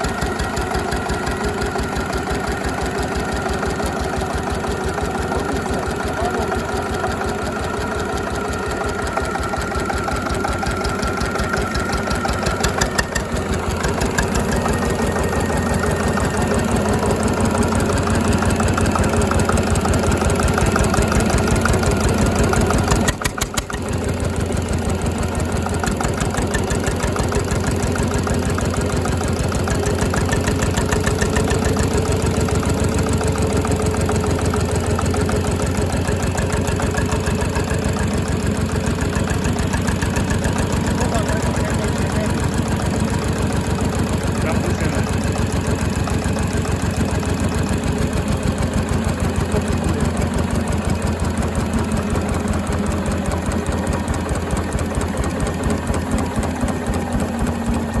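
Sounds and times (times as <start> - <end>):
diesel engine knocking steadily: 0.0 - 58.0.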